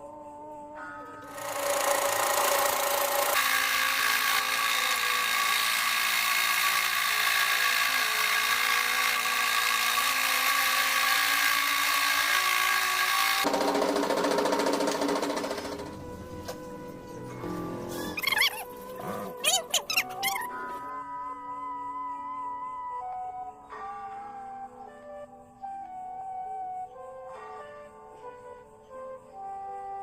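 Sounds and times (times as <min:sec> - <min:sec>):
electric power tool whining: 0:01.2 - 0:20.6.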